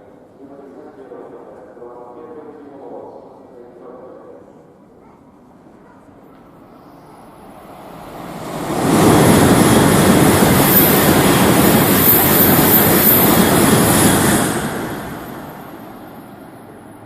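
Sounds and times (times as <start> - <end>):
high-speed train rushing past: 6.4 - 17.0.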